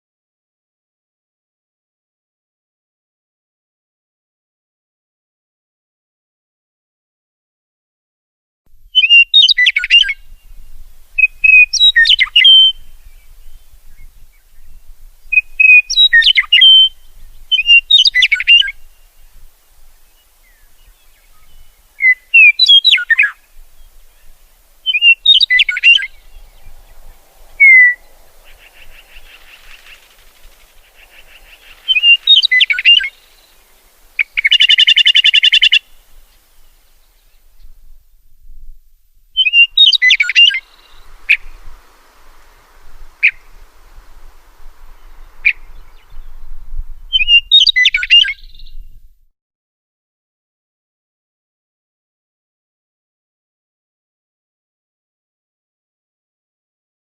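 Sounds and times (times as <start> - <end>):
songbird whistled phrases: 9.0 - 10.5, 11.2 - 14.0, 15.3 - 18.8, 20.4 - 33.6, 34.2 - 36.0, 39.4 - 41.6, 43.2 - 43.5, 47.1 - 48.9
harsh buzzy bird call: 21.0 - 36.8, 39.4 - 46.2.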